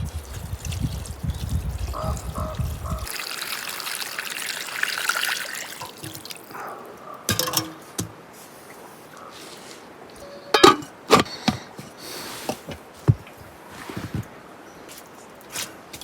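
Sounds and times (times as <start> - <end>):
water pouring and trickling: 0.0 - 6.6.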